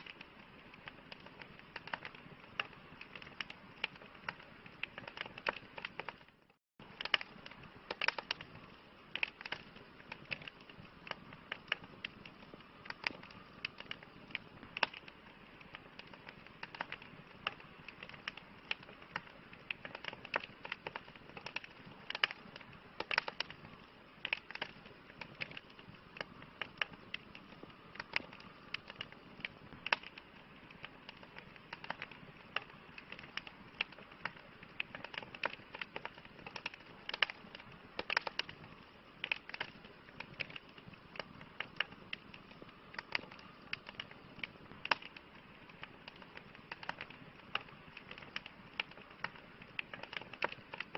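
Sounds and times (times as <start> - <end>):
campfire crackling: 0.0 - 50.9.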